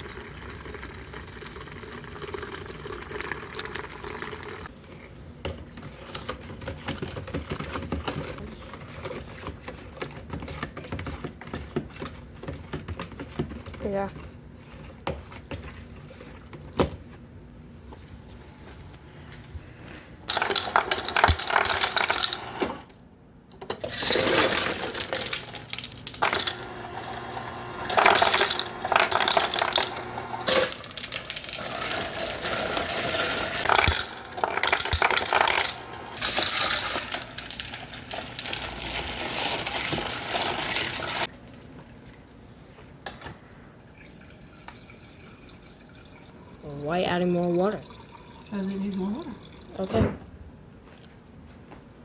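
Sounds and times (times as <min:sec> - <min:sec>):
small hard objects clattering: 0:20.3 - 0:22.4, 0:23.8 - 0:26.6, 0:27.9 - 0:41.3.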